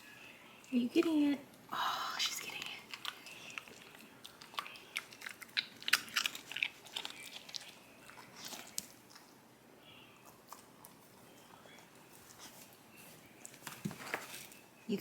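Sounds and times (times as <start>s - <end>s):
dog crunching treats: 2.2s - 9.4s.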